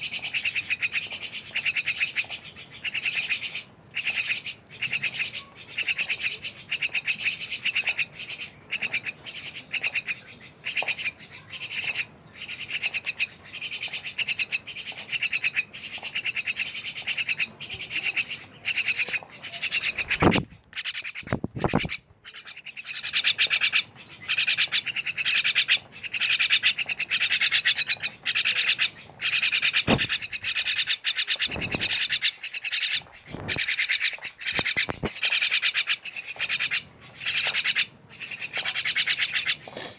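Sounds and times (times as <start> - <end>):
starlings chattering: 0.0 - 39.9
dull thumps: 29.8 - 30.3.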